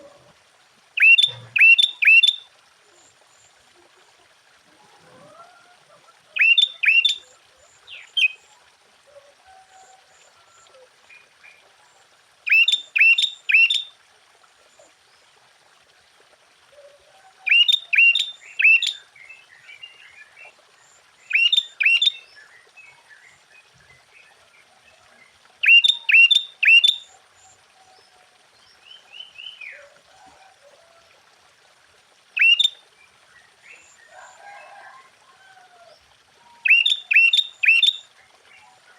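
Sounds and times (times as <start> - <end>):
bird singing sharp phrases: 1.0 - 2.4, 6.4 - 7.2, 12.5 - 13.9, 17.5 - 19.0, 21.3 - 23.3, 25.6 - 27.0, 32.4 - 32.8, 36.6 - 38.0.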